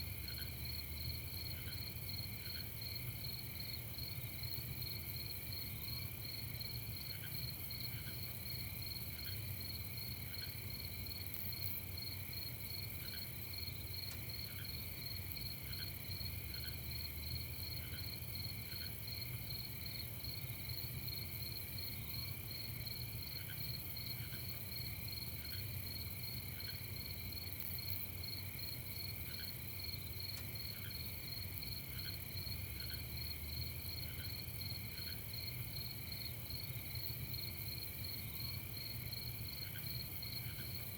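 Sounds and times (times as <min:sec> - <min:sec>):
crickets trilling: 0:00.1 - 0:40.9.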